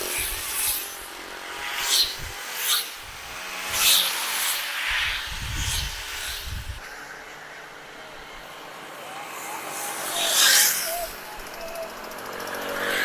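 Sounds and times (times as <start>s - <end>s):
wind rushing over microphone: 2.0s - 4.0s, 4.9s - 6.9s.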